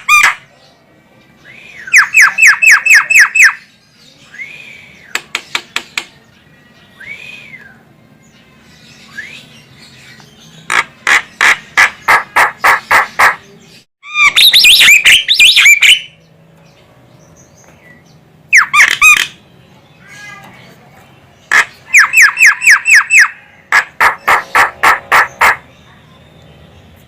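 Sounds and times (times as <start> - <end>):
bird chattering with whistles: 1.8 - 3.7, 10.6 - 16.2, 18.5 - 19.4, 21.4 - 25.9
harsh short bird notes: 17.2 - 27.0
myna calling: 21.4 - 25.8.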